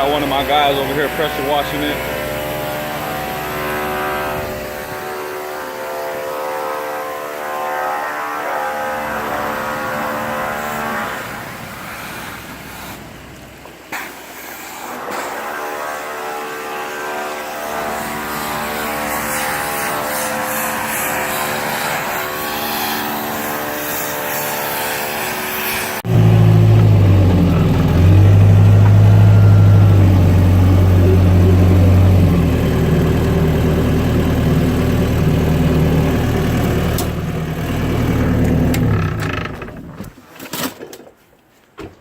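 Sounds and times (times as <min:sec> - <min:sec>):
engine running steadily: 0:00.0 - 0:05.2, 0:26.0 - 0:40.2
deep engine revving: 0:26.0 - 0:40.1.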